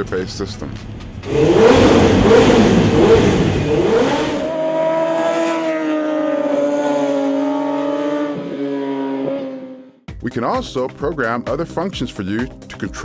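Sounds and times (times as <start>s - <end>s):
motorcycle engine revving: 0.0s - 10.1s
background music chords: 10.1s - 13.0s.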